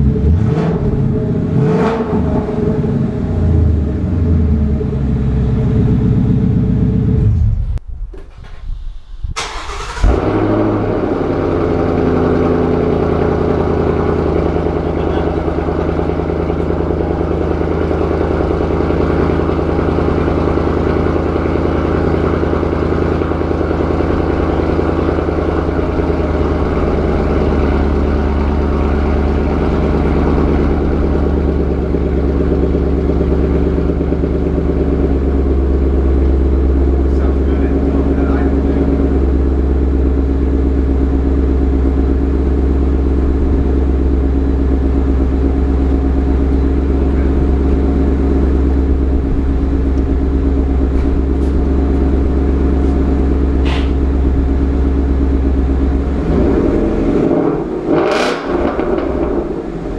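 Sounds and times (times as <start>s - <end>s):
car engine idling: 0.0s - 7.8s, 9.4s - 59.9s.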